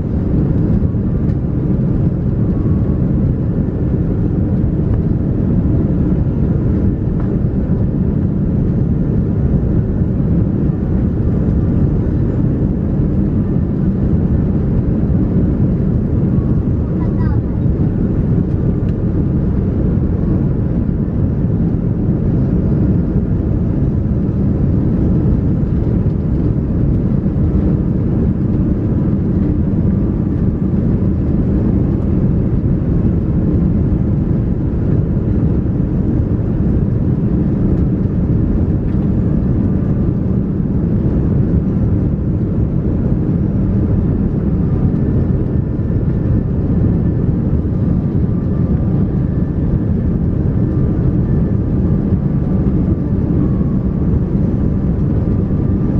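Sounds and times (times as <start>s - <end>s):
airliner cabin engine roar: 0.0s - 55.9s.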